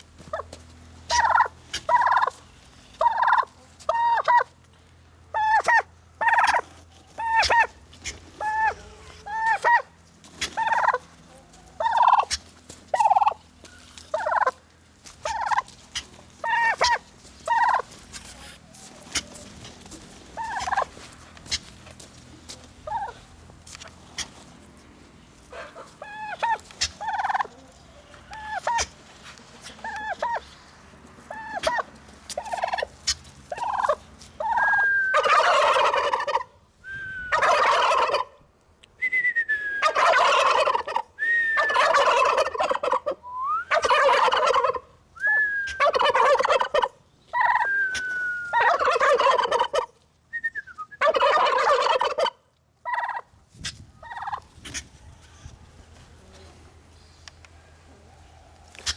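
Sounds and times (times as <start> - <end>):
turkey gobbling: 0.2 - 30.6, 31.2 - 38.5, 39.8 - 56.1, 57.2 - 58.9
short falling whistle: 45.2 - 45.8, 47.6 - 48.6.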